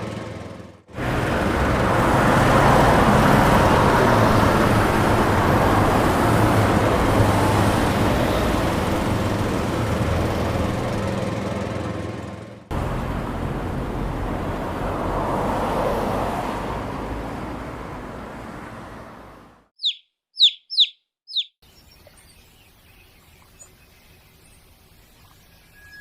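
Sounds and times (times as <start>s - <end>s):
faint bird chirps: 19.8s - 26.0s
small bird chirping: 19.8s - 26.0s.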